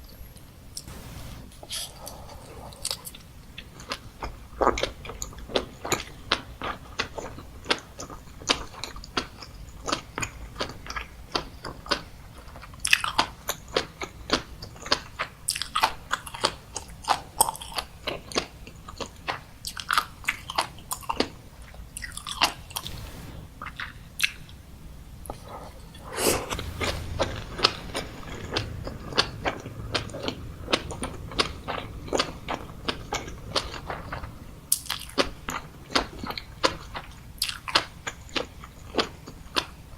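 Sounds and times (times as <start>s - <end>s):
sharp popping crunches: 22.8s - 23.9s.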